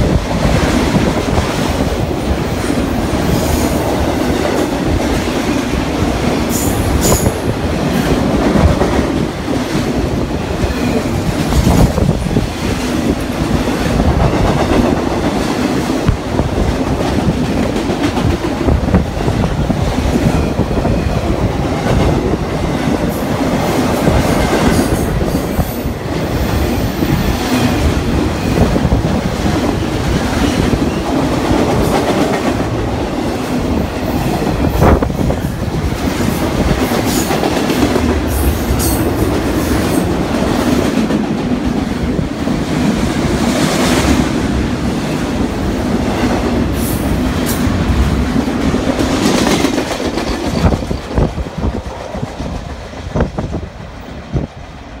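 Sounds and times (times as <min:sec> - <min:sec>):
freight train rumbling past: 0:00.0 - 0:55.0
steel wheels clickety-clack: 0:10.6 - 0:44.4, 0:45.9 - 0:53.6.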